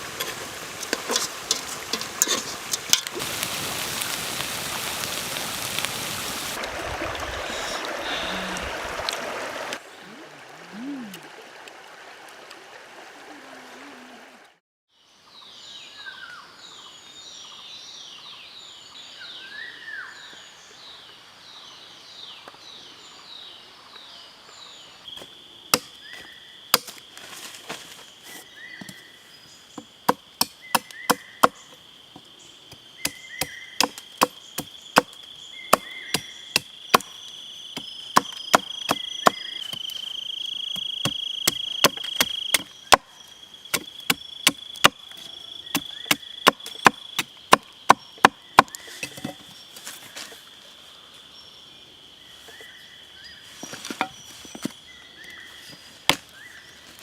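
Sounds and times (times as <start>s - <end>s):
chopping strikes on wood: 25.7s - 26.0s, 26.7s - 27.0s, 30.1s - 31.6s, 33.0s - 37.1s, 37.8s - 39.8s, 41.0s - 43.1s, 43.7s - 45.0s, 45.7s - 49.4s.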